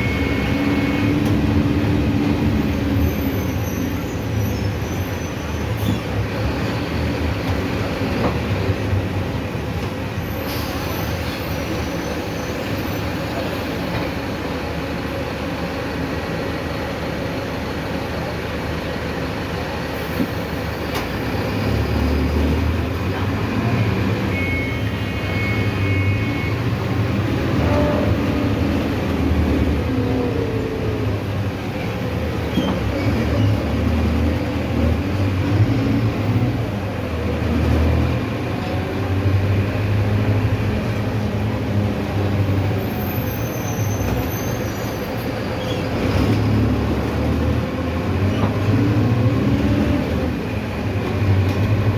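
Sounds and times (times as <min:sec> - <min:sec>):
high beep: 0:00.0 - 0:01.1, 0:24.3 - 0:26.6
bus diesel engine running: 0:00.0 - 0:51.9.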